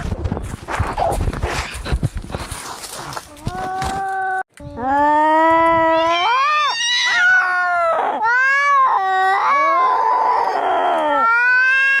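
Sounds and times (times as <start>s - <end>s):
cats yowling: 5.1s - 12.0s.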